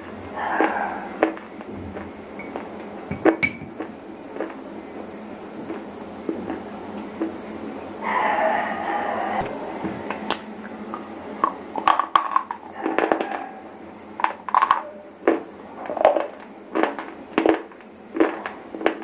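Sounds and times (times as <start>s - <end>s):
crunchy chewing of stone: 0.0s - 4.6s, 5.6s - 7.4s, 14.2s - 19.0s.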